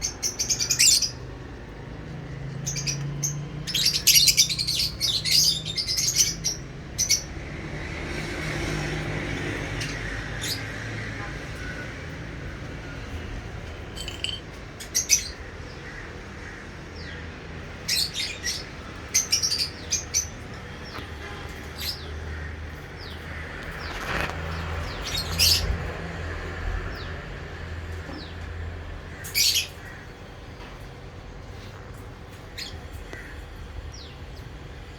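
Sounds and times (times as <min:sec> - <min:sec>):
lovebirds chirping: 0:13.8 - 0:15.4.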